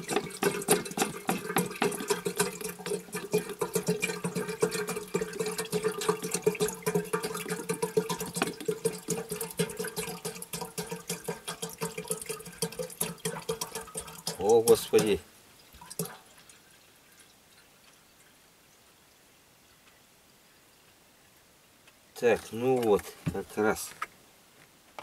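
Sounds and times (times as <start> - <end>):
water pouring into a kettle: 0.0 - 18.3.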